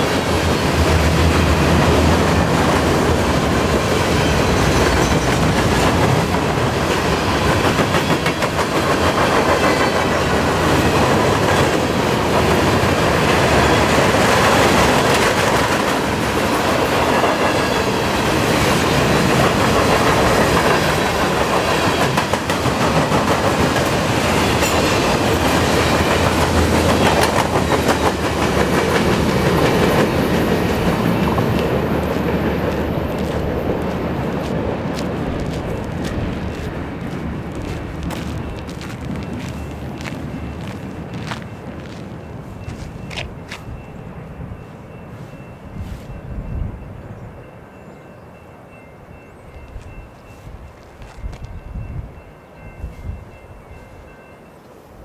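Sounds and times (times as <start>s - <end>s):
wheels clacking over rail joints: 0.0s - 43.8s
freight train rumbling past: 0.0s - 55.0s.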